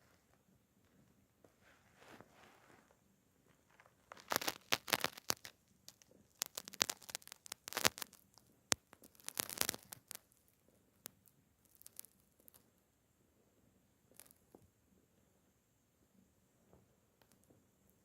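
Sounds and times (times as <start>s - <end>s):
cat claws scratching fabric: 1.6s - 10.4s.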